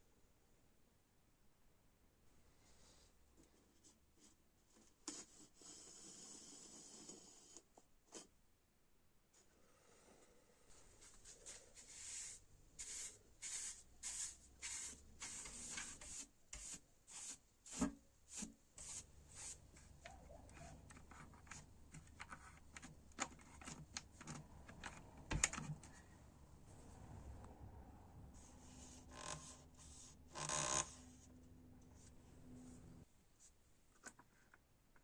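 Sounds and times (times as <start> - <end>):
brushing strokes: 10.9 - 21.8.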